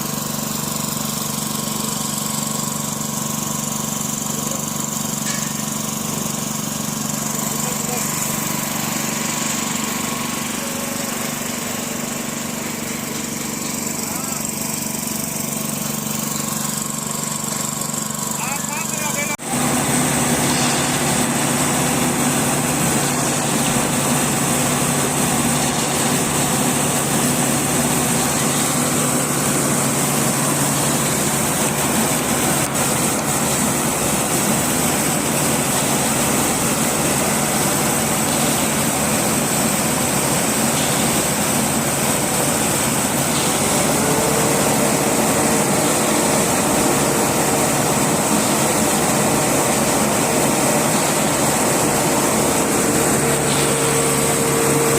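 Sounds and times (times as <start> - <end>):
machine engine running: 0.0 - 54.9.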